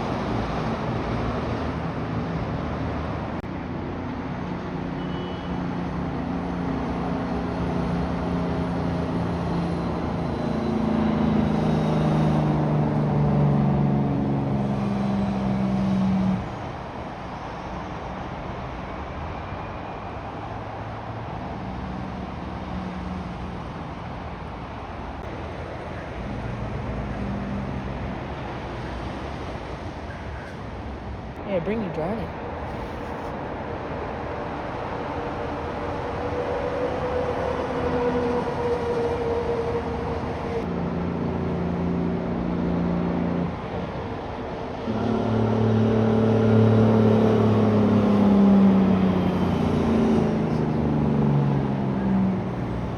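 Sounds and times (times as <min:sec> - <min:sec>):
road traffic: 0:00.0 - 0:52.9
truck diesel engine passing: 0:25.8 - 0:52.9.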